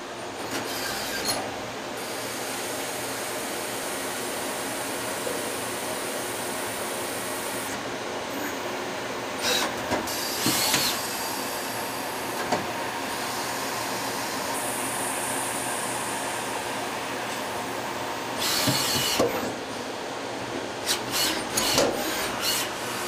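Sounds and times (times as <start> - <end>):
lathe machining: 9.4 - 19.5, 20.8 - 23.0.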